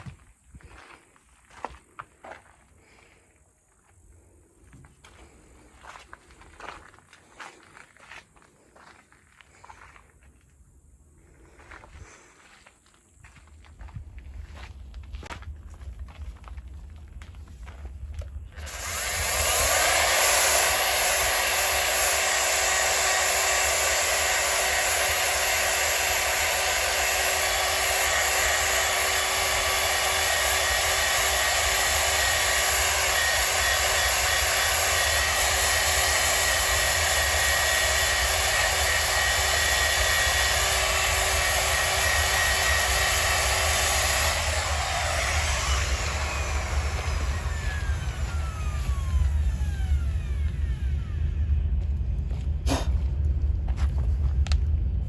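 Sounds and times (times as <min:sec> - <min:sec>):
small electric machine whirring: 0:18.6 - 0:51.9
rough rushing noise: 0:44.7 - 0:55.0.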